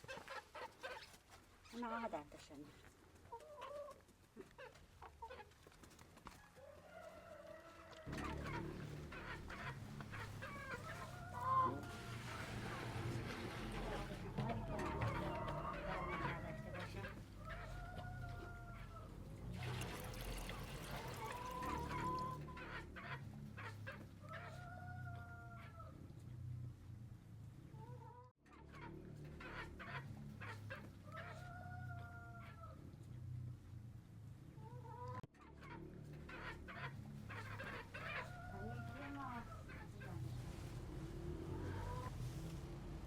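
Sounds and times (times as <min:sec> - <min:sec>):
hens clucking: 0:00.0 - 0:26.4, 0:27.6 - 0:33.2, 0:34.5 - 0:43.0
rooster crowing: 0:06.5 - 0:08.9, 0:14.4 - 0:19.1.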